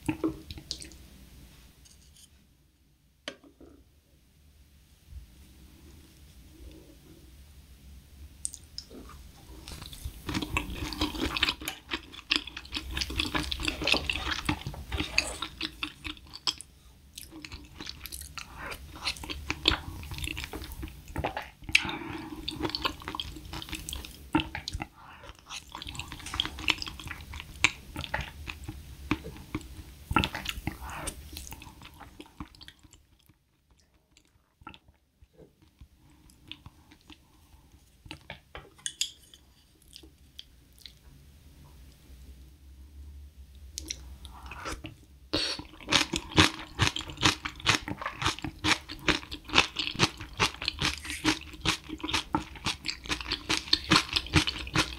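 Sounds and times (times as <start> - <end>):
wet chewing and mouth sounds: 8.4 - 41.0, 43.8 - 45.0, 45.6 - 54.9.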